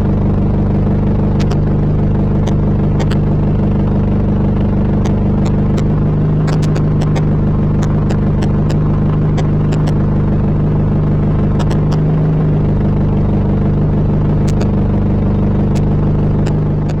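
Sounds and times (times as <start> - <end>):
car engine running steadily: 0.0 - 17.0
sharp ticks: 0.4 - 1.7, 2.4 - 10.3, 11.4 - 12.1, 14.4 - 14.9, 15.5 - 17.0.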